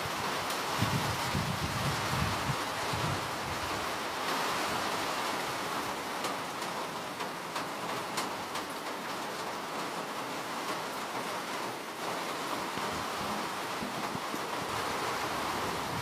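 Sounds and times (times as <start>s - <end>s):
steady rain hiss: 0.0s - 16.0s
raindrops ticking: 5.9s - 14.7s.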